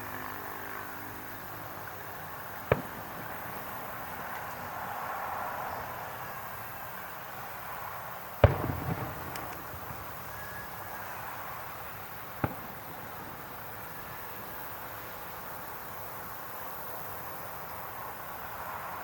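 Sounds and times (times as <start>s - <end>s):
fireworks crackling: 1.6s - 17.2s
fireworks bangs: 2.4s - 6.6s, 8.4s - 15.3s.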